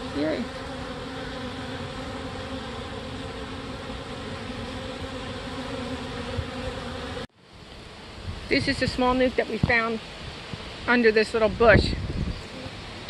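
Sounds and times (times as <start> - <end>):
bee swarm buzzing: 0.0 - 13.0.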